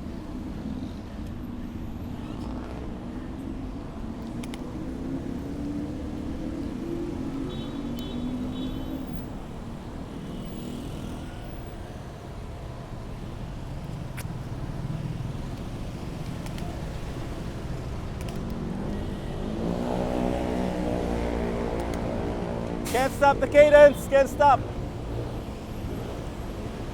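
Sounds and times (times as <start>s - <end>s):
traffic rumble: 0.0s - 26.9s.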